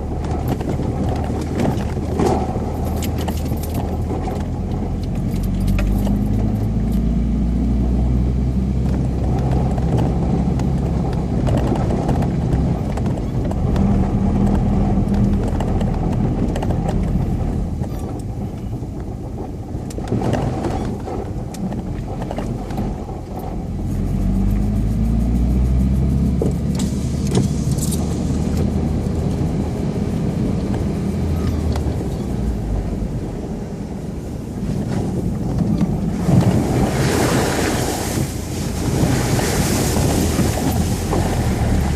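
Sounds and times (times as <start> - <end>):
off-road vehicle engine running: 0.0 - 41.9
knocks and clicks: 8.8 - 18.3.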